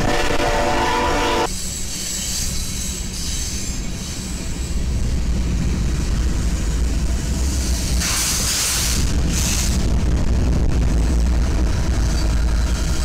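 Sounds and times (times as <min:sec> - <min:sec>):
diesel locomotive rumble: 0:00.0 - 0:13.0
high wheel squeal: 0:00.6 - 0:05.0.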